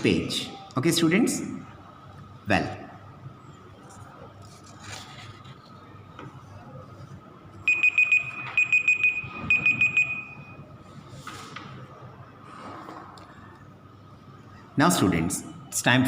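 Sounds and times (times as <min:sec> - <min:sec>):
electronic alarm beeping: 0:07.6 - 0:10.7.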